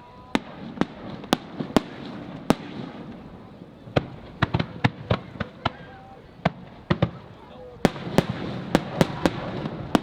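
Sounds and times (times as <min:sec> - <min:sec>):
fireworks bursting with bangs: 0:00.0 - 0:10.0
fireworks rumble and crackle: 0:00.0 - 0:10.0.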